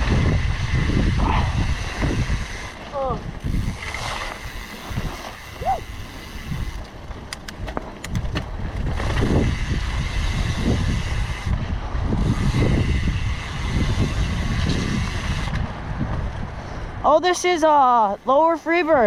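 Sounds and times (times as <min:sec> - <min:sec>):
mountain bike rumbling on dirt trail: 0:00.0 - 0:19.0
wind buffeting microphone: 0:00.0 - 0:19.0
sharp clicks: 0:06.8 - 0:08.5.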